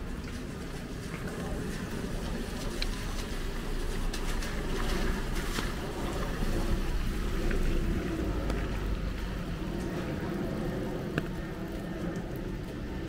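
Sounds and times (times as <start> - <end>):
heavy rain falling: 0.0 - 13.0
low continuous rumble: 0.0 - 13.0
sharp drip-like taps: 11.1 - 12.8.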